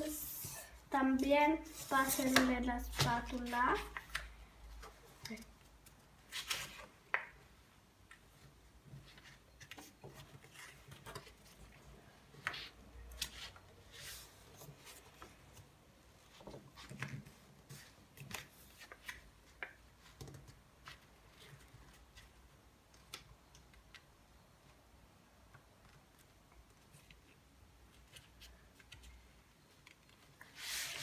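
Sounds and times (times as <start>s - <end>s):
paper rustling and crinkling: 9.0s - 11.8s, 29.8s - 31.0s.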